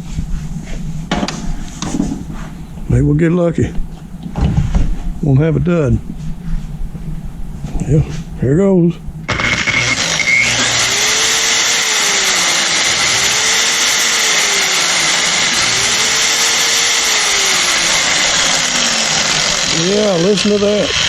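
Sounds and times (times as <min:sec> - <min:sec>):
car polisher whirring: 0:09.3 - 0:21.0.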